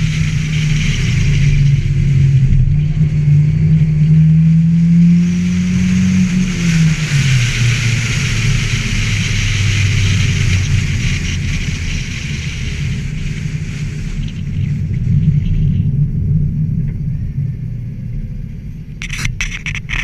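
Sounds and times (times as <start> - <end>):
car engine revving hard: 0.0 - 13.9.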